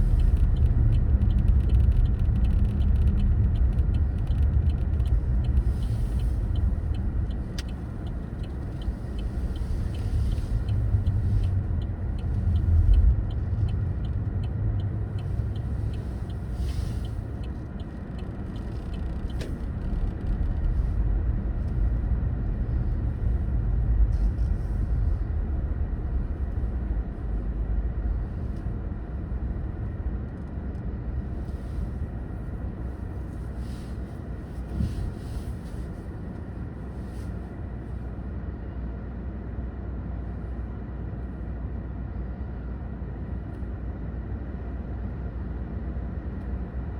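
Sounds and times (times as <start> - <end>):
car engine and road noise: 0.0 - 46.9.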